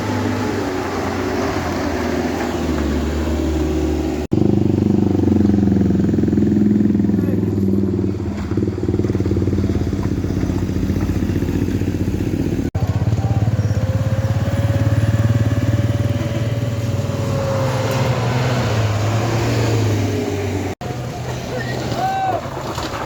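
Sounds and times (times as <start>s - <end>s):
vehicle engine running: 1.6s - 19.4s.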